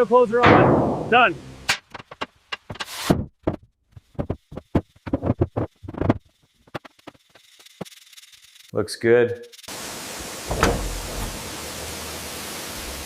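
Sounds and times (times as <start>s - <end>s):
steel door knocking and clicking: 10.5s - 11.4s.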